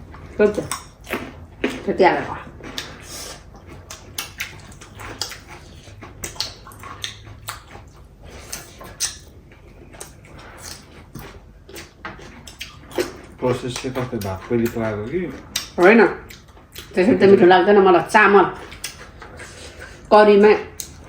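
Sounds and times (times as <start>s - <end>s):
chewing and lip smacks: 0.1s - 17.0s, 18.6s - 20.1s, 20.7s - 21.0s.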